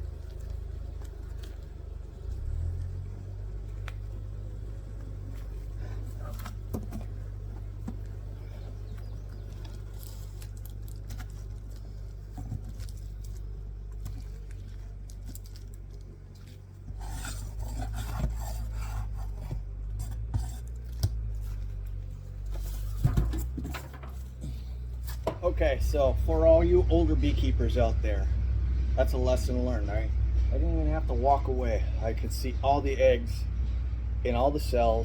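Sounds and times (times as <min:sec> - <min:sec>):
steady low hum: 0:00.0 - 0:35.0
small hard objects clinking: 0:09.4 - 0:17.3.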